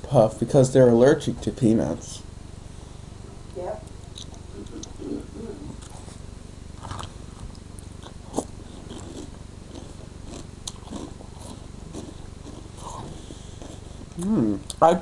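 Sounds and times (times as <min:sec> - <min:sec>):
low steady hum: 0:00.0 - 0:15.0
person chewing crunchy cereal: 0:06.8 - 0:14.2.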